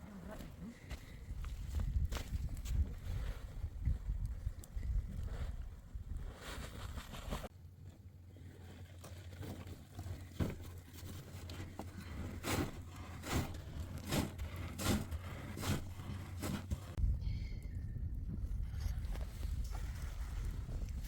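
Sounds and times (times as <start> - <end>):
scraping crunching impacts: 8.4 - 17.0.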